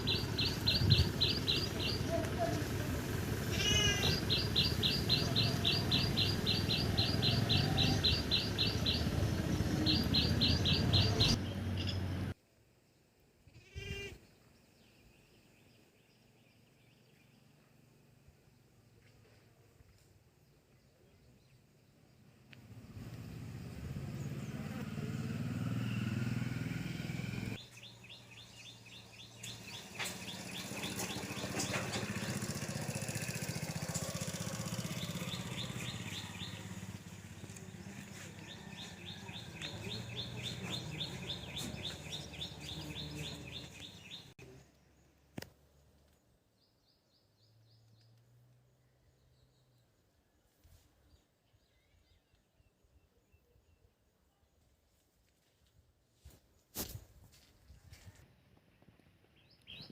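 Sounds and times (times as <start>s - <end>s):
bird chirping trills: 0.0s - 2.6s, 3.7s - 12.3s, 27.0s - 50.1s
low engine hum: 0.0s - 12.4s, 22.4s - 45.2s.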